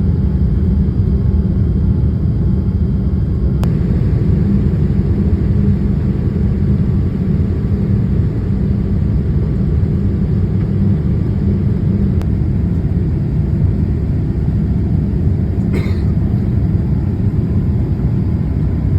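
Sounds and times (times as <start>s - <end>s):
jet engines roaring in cabin: 0.0s - 18.9s
air rushing past fuselage: 3.6s - 9.3s.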